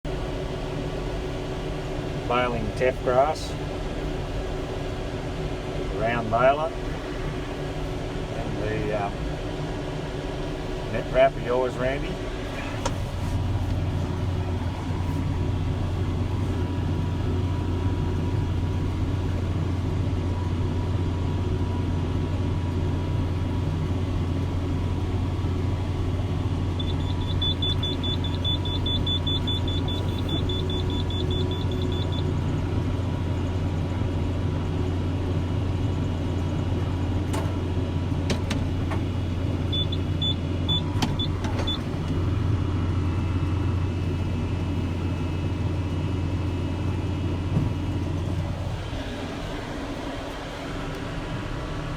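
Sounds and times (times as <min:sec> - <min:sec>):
tractor and baler droning: 0:00.0 - 0:51.9
rapid high electronic beeps: 0:26.8 - 0:32.2.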